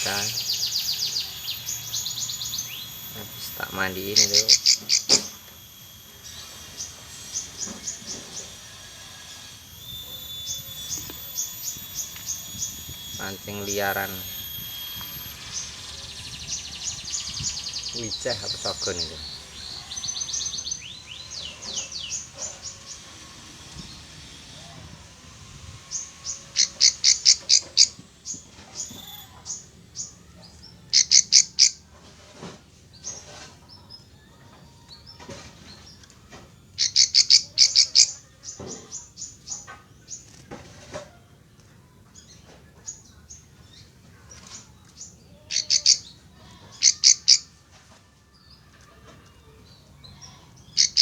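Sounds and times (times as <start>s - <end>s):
bird rapid high chirps: 0.0s - 23.2s, 25.8s - 31.8s, 36.8s - 39.6s, 43.7s - 47.5s, 50.1s - 51.0s.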